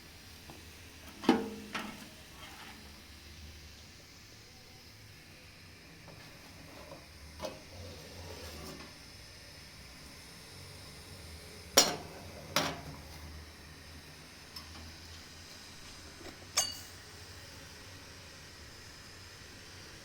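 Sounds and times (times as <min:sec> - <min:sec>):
cast iron stove parts clinking: 0:01.0 - 0:02.9, 0:11.8 - 0:13.0, 0:14.5 - 0:15.0, 0:16.2 - 0:17.0.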